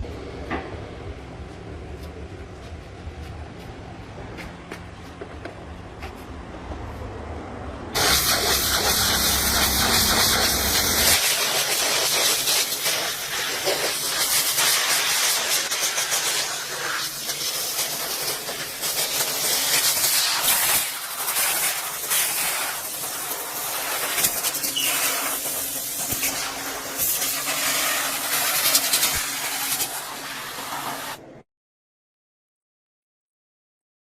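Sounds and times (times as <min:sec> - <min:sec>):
compressed air jet hissing: 0:08.0 - 0:31.2.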